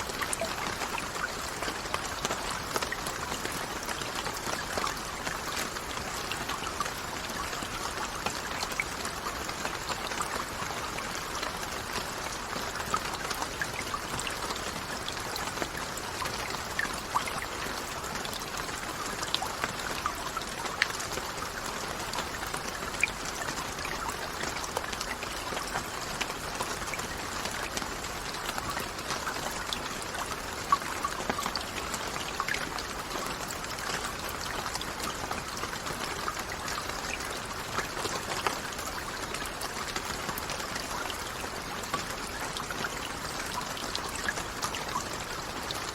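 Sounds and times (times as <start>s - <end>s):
raindrops ticking: 0.0s - 45.9s
steady rain hiss: 0.0s - 45.9s.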